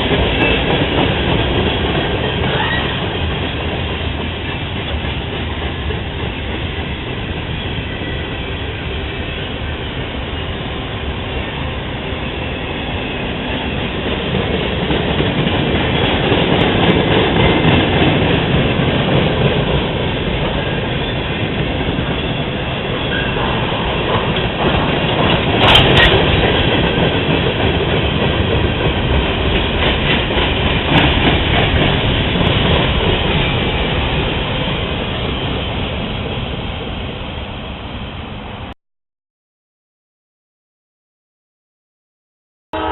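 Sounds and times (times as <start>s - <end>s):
train wheels clacking: 0.0s - 36.6s.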